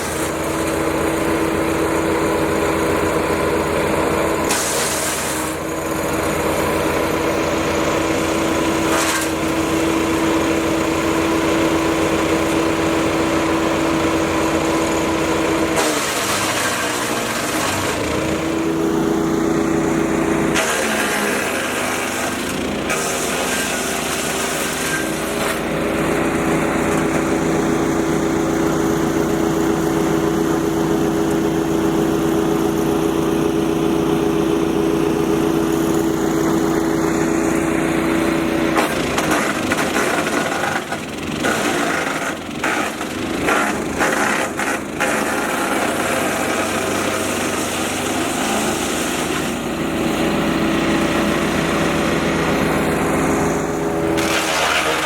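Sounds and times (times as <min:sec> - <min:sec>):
wood chipper engine running: 0:00.0 - 0:55.0.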